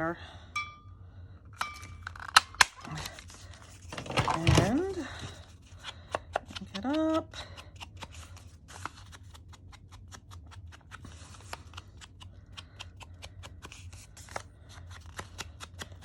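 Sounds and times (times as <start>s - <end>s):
low steady hum: 0.0s - 9.2s
paper and card rustling: 1.8s - 16.0s.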